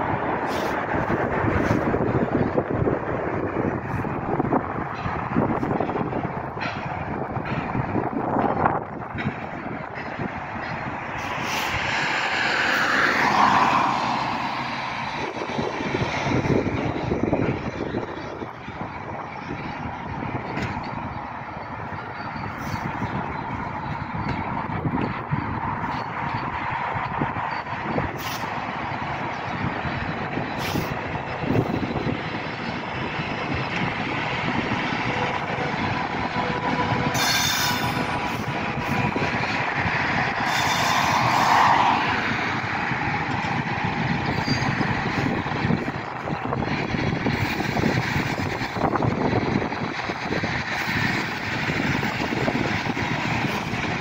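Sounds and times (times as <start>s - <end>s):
electric locomotive passing: 0.0s - 54.0s
low rumble of wagons: 0.0s - 54.0s.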